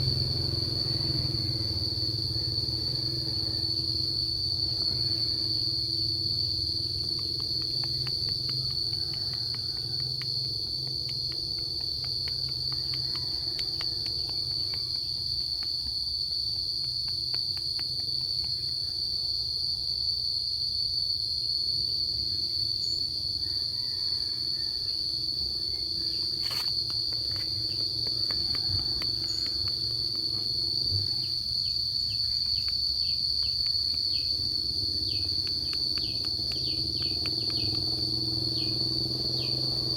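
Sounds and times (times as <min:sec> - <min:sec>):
insects chirring: 0:00.0 - 0:39.9
faint ticks: 0:06.8 - 0:18.9, 0:26.3 - 0:31.0, 0:32.1 - 0:39.8.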